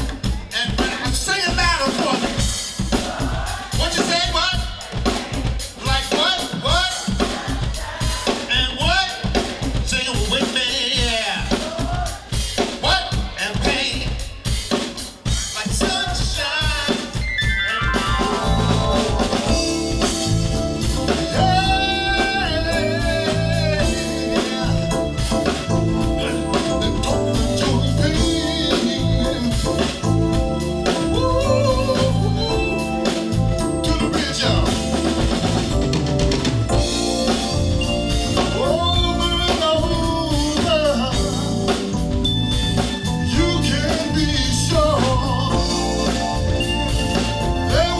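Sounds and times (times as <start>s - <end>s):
drum kit beat: 0.0s - 47.9s
full band playing: 0.0s - 47.9s
person singing: 15.4s - 35.8s, 38.2s - 42.1s, 43.0s - 47.9s.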